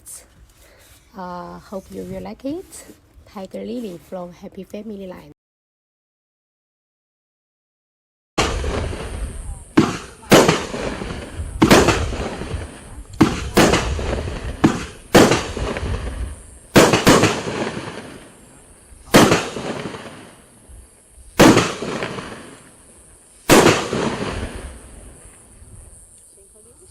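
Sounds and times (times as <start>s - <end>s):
fireworks bangs: 8.4s - 26.0s.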